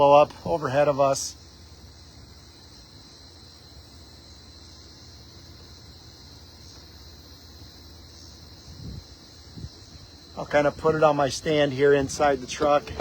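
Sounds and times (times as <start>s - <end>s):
crickets and insects chirring: 0.0s - 13.0s.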